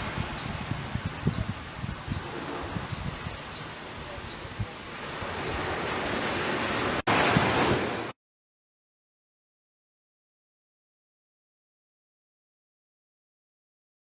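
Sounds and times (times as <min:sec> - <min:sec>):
ocean surf on beach: 0:00.0 - 0:08.2
wind: 0:00.0 - 0:08.2.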